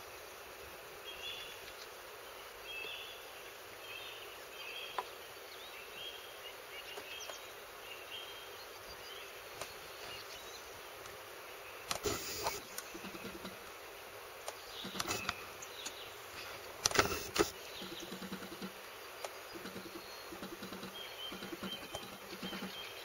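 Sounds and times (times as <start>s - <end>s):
faint outdoor hiss: 0.0s - 23.0s
distant bird calling: 11.5s - 23.0s
soft clicks: 11.9s - 13.8s, 14.4s - 16.0s.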